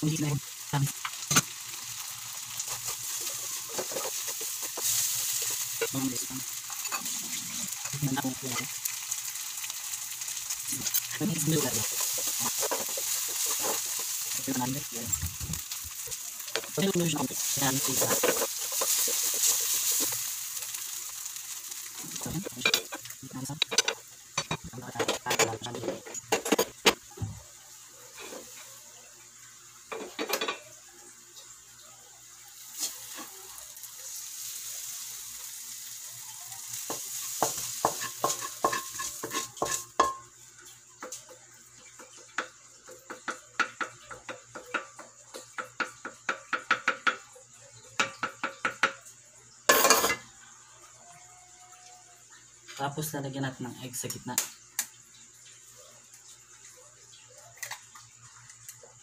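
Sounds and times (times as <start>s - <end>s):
fish sizzling in a wok: 0.0s - 59.0s
wooden spatula scraping pan: 2.6s - 6.0s, 10.8s - 14.6s, 17.4s - 20.2s.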